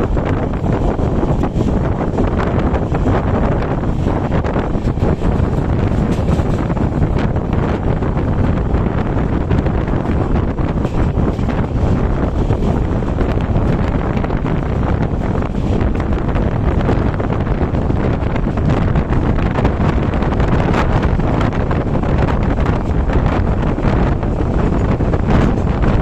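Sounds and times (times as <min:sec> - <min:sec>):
train wheels rumbling on rails: 0:00.0 - 0:26.0
wind buffeting microphone: 0:00.0 - 0:26.0
clicks of train wheels: 0:04.7 - 0:07.2.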